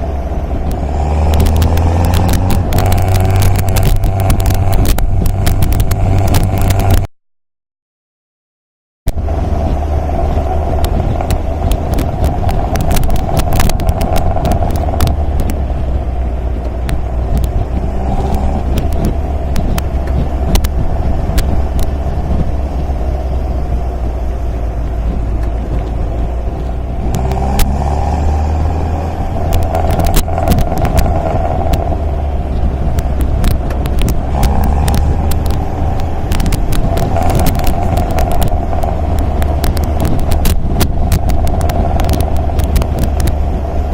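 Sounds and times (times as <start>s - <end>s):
car engine droning while driving: 0.0s - 7.1s, 9.1s - 43.9s.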